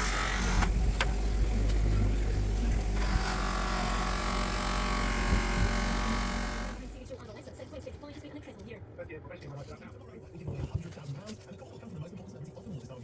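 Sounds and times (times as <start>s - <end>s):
power tool motor humming: 0.0s - 7.0s.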